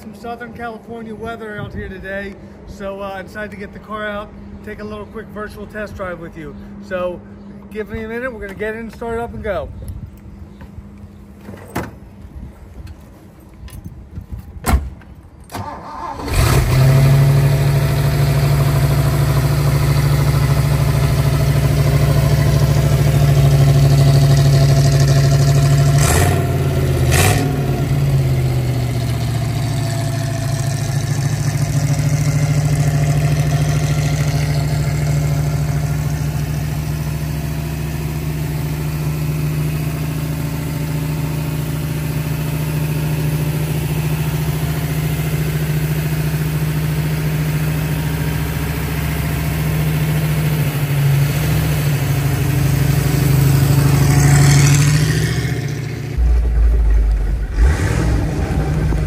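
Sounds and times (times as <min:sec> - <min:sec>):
car engine idling: 0:17.1 - 0:59.0.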